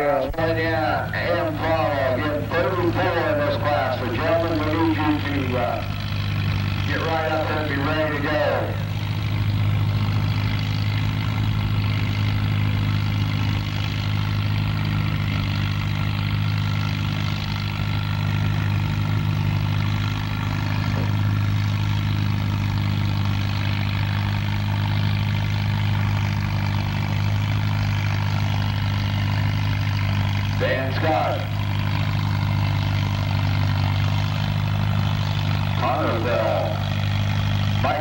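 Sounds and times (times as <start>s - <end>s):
engine running steadily: 0.0s - 38.0s.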